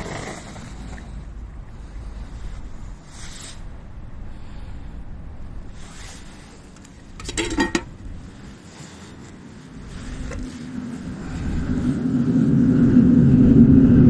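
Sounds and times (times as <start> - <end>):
low background rumble: 0.0 - 14.0
metal clinking and rattling: 7.2 - 8.0.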